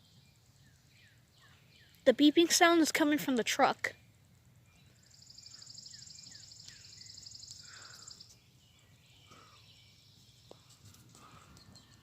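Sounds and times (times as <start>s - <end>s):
bird chirps: 3.9s - 10.7s.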